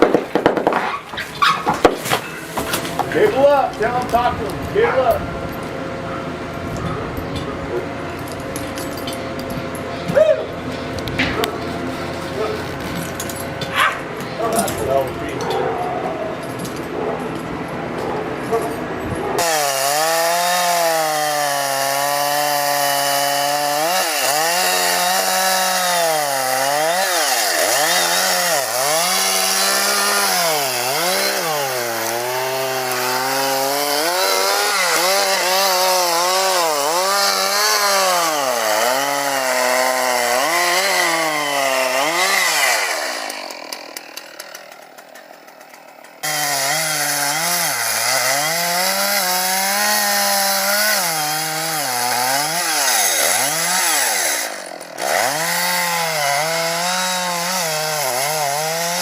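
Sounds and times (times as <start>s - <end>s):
chainsaw cutting into tree: 0.0s - 6.0s, 18.5s - 59.0s.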